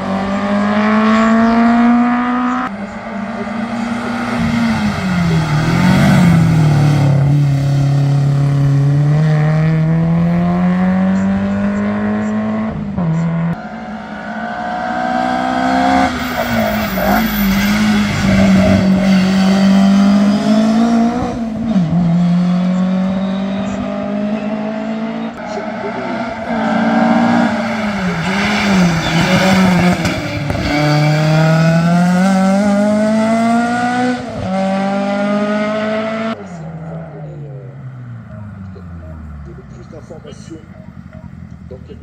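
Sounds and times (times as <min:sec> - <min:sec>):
race car engine revving: 0:00.0 - 0:42.0.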